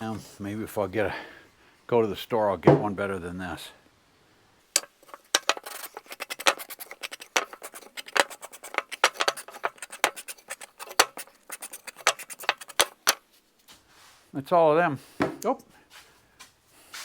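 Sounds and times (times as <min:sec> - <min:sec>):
wooden pieces knocking and clicking: 0:04.8 - 0:13.2.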